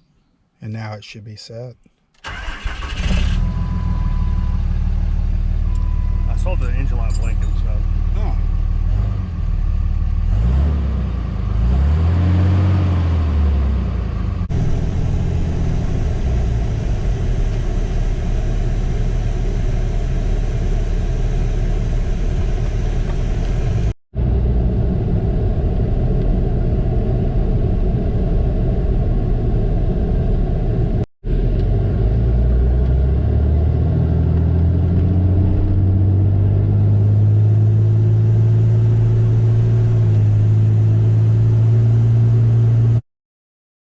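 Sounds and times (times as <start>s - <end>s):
diesel engine running: 2.2s - 10.4s, 13.6s - 43.0s.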